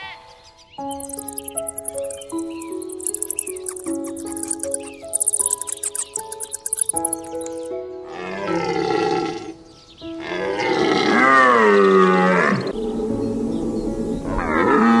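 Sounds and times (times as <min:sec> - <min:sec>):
background music: 0:00.0 - 0:15.0
large animal calling: 0:08.1 - 0:09.6, 0:10.2 - 0:13.1.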